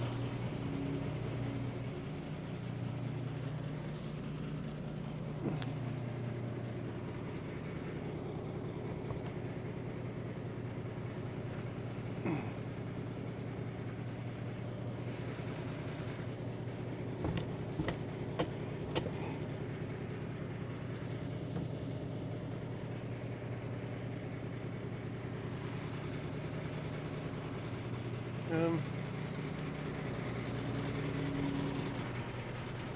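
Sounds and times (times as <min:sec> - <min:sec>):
engine idling: 0:00.0 - 0:32.9
sharp knocks or clanks: 0:17.2 - 0:19.2.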